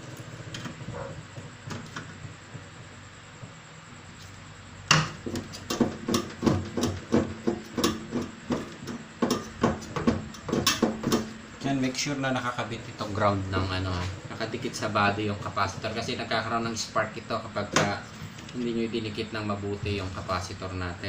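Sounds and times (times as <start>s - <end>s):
tools knocking and clicking: 4.9s - 11.3s.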